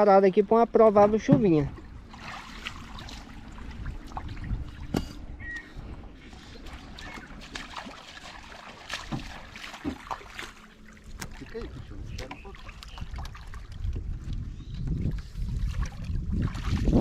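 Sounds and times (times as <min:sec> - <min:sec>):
water trickling and lapping: 0:00.0 - 0:17.0
canoe knocks and bumps: 0:00.9 - 0:01.8, 0:08.9 - 0:10.2.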